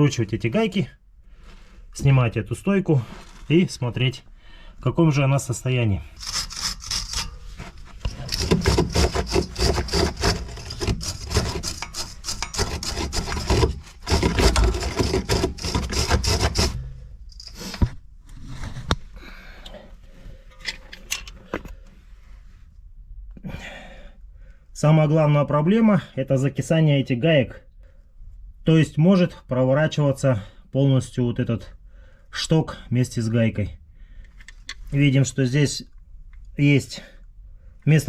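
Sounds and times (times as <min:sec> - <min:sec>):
metallic scraping of hand tools: 0:06.1 - 0:18.7
tool handling clicks: 0:20.6 - 0:21.8.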